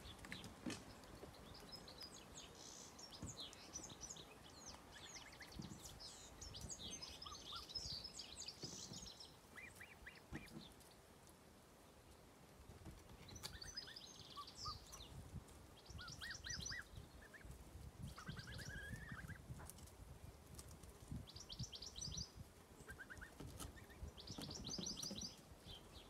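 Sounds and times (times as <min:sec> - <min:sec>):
lower bird calls: 0:15.8 - 0:19.4, 0:21.3 - 0:26.0.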